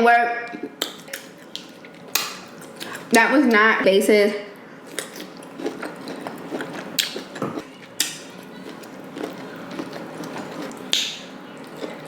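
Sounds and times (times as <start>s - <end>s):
wet chewing and smacking: 0.5s - 3.1s, 4.9s - 12.0s.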